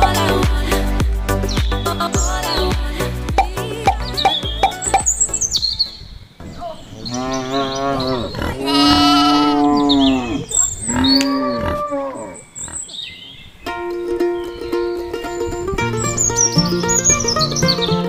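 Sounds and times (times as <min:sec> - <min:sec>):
light plucked background music: 0:00.0 - 0:05.9, 0:13.6 - 0:18.0
cow mooing: 0:06.9 - 0:12.9.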